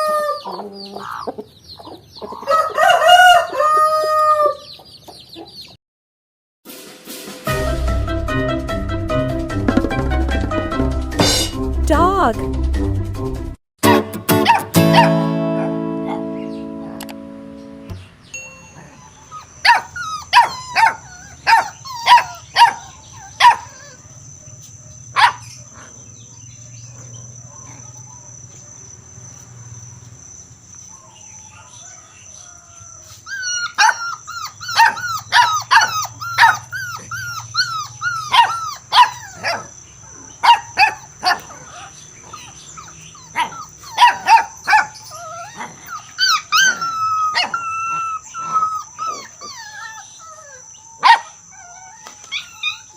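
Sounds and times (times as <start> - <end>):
dog whining yelps: 18.8 - 24.0, 33.3 - 39.7, 40.4 - 52.9
dog barking: 19.7 - 23.7, 25.2 - 25.9, 34.8 - 36.6, 38.2 - 39.7, 40.4 - 41.6, 43.2 - 45.0, 51.0 - 51.4.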